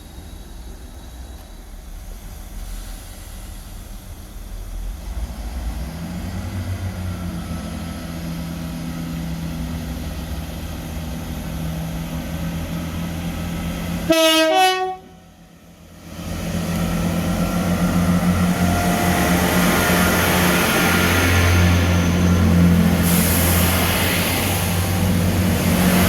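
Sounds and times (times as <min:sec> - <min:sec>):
diesel train engine running: 0:00.0 - 0:26.0
two-tone train horn: 0:14.1 - 0:15.3.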